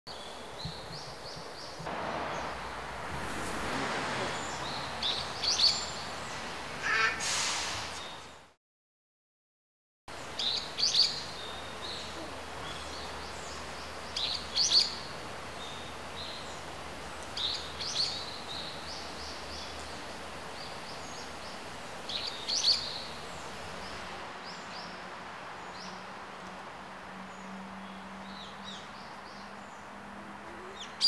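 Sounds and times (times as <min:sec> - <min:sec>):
forest ambience hiss: 0:00.1 - 0:08.5, 0:10.1 - 0:31.0
songbird calling: 0:04.2 - 0:07.4, 0:10.2 - 0:25.0, 0:27.3 - 0:31.0.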